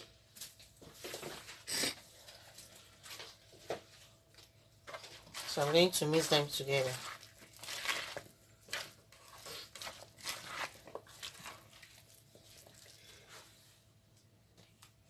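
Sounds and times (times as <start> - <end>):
salad squishing and scraping in bowl: 2.4 - 13.8.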